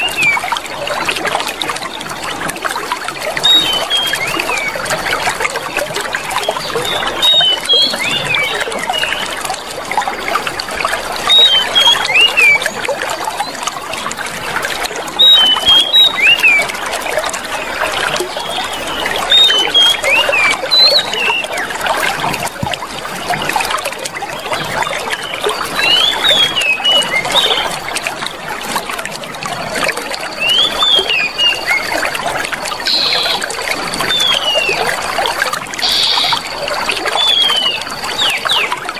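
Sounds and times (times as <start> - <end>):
water trickling: 0.0 - 38.9
bird chirps and whistles: 3.4 - 4.8, 6.4 - 9.2, 11.3 - 12.6, 15.2 - 16.7, 18.4 - 21.7, 25.1 - 27.6, 30.4 - 32.0, 32.9 - 33.4, 34.1 - 34.8, 35.8 - 36.6, 37.2 - 38.8.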